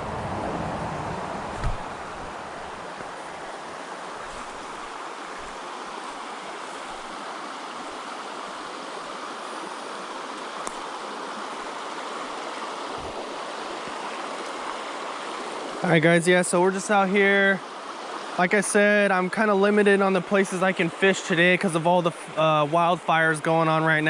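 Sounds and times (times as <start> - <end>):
low thumps: 0.0 - 2.4
creek water rushing: 0.0 - 24.0.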